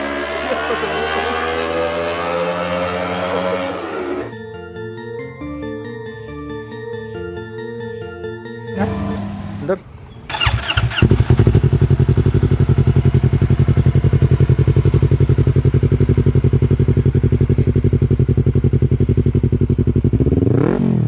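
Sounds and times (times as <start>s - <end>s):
motorcycle engine idling: 10.3s - 20.4s.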